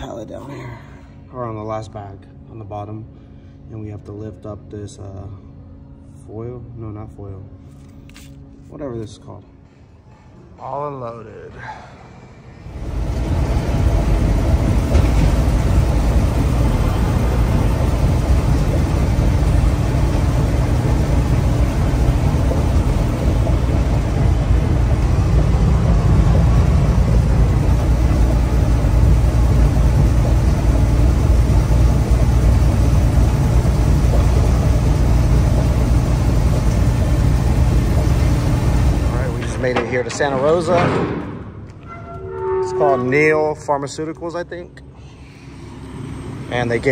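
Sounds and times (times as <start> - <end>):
diesel truck engine drone: 11.9 - 46.9
road noise: 12.6 - 46.9.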